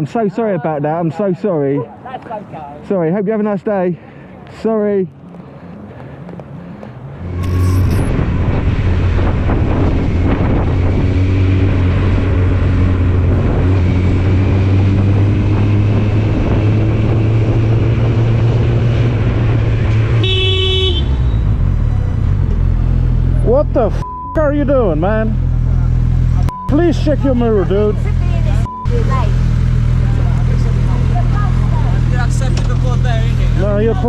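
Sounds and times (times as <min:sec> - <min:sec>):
road and wind noise: 0:00.0 - 0:34.0
vehicle horn blast: 0:07.2 - 0:08.1, 0:20.2 - 0:21.5
motorcycle engine running: 0:20.2 - 0:34.0.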